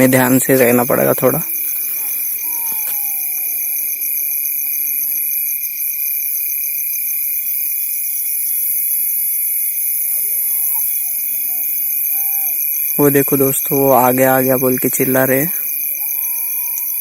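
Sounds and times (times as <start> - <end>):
crickets and insects trilling: 0.0 - 17.0.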